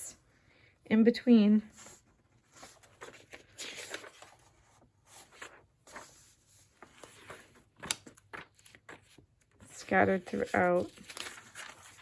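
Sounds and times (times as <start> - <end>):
paper pages turning: 1.7 - 12.0.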